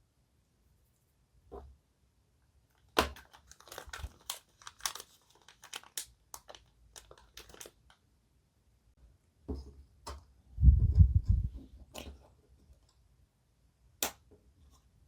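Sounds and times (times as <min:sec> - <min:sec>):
plastic packaging crinkling: 0:02.9 - 0:08.0.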